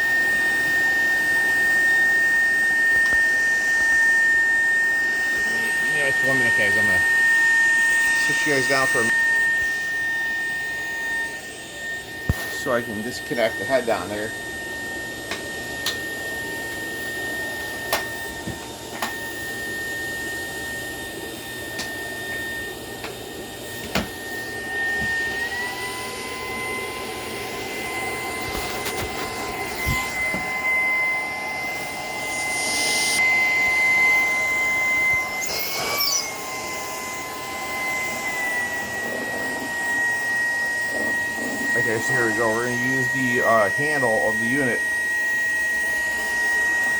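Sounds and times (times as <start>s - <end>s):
stick vacuum motor whine: 0.0s - 46.9s.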